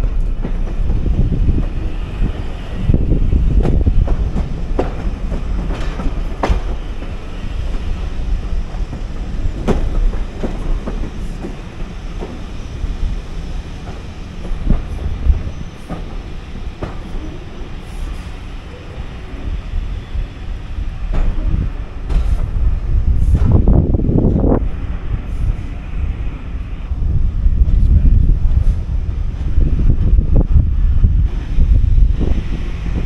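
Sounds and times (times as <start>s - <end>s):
railway carriage rumble: 0.0s - 33.0s
wheels clicking over rail joints: 3.2s - 17.8s.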